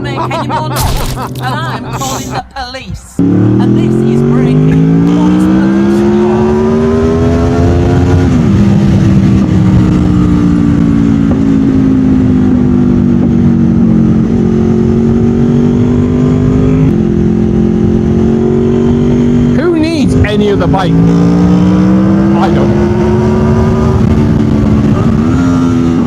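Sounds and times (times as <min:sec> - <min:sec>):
motorcycle engine revving loud: 0:03.2 - 0:26.0.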